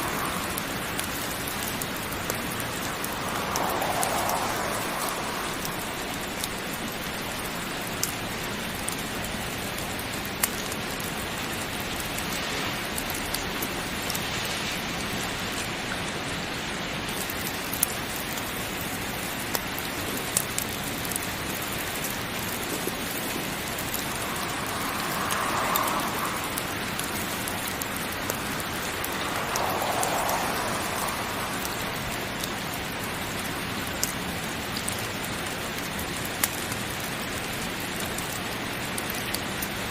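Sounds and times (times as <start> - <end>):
heavy rain: 0.0 - 39.9
sharp ticks: 22.0 - 33.0.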